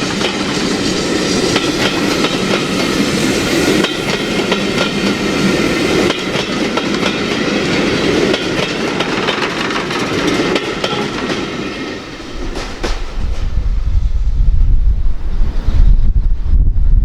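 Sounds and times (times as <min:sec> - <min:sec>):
wind on microphone: 0:00.0 - 0:07.5, 0:12.1 - 0:17.0
train wheels clickety-clack: 0:00.0 - 0:13.7.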